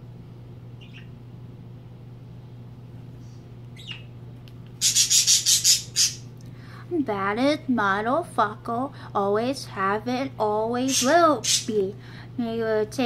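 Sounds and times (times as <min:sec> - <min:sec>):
faint bird chirps: 0:00.8 - 0:01.2, 0:03.3 - 0:04.2, 0:04.8 - 0:06.3
pet bird squawking: 0:00.8 - 0:01.2, 0:03.8 - 0:04.1, 0:04.8 - 0:06.3, 0:10.9 - 0:11.8.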